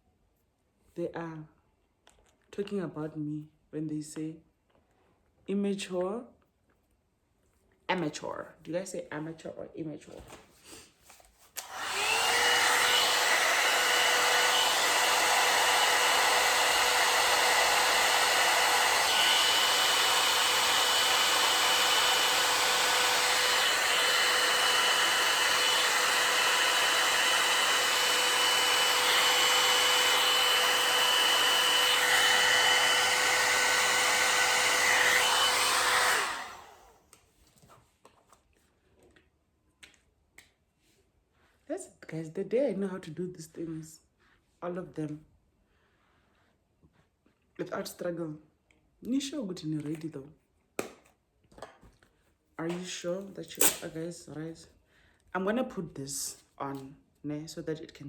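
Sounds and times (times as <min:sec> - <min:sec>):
hair dryer blowing: 0:11.6 - 0:37.0, 0:53.6 - 0:53.9.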